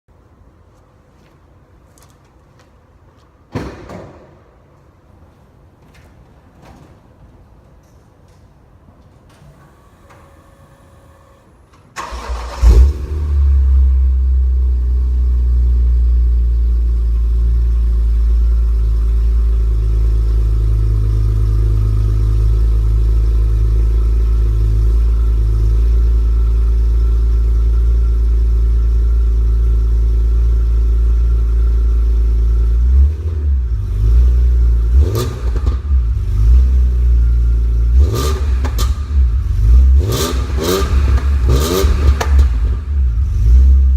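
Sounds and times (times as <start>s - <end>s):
car engine starting and idling: 9.3s - 43.9s.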